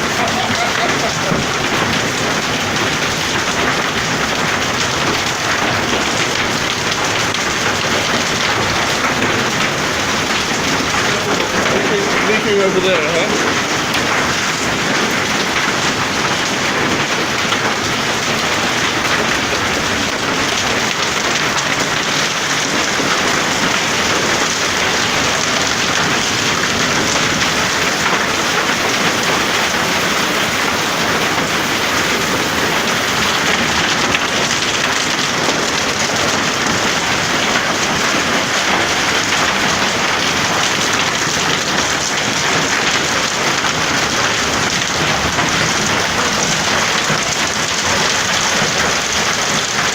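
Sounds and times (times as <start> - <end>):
hail and heavy rain falling: 0.0 - 49.9.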